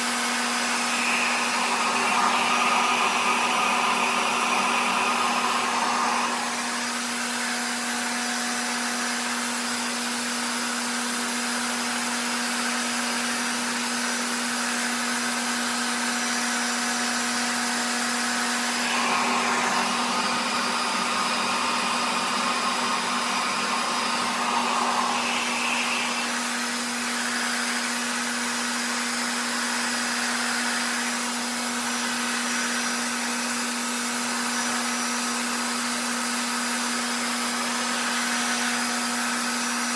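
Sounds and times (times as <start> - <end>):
blow dryer motor hum: 0.0 - 39.9
air rushing with suction: 0.6 - 7.1, 18.6 - 26.6.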